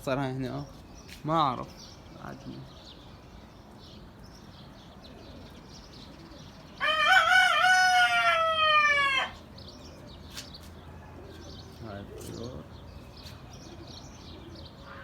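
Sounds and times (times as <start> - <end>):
rooster crowing: 6.8 - 9.4.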